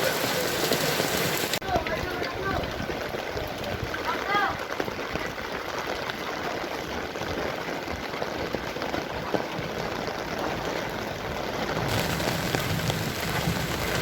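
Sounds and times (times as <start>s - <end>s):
heavy rain falling: 0.0s - 14.0s
low rumble: 11.9s - 14.0s.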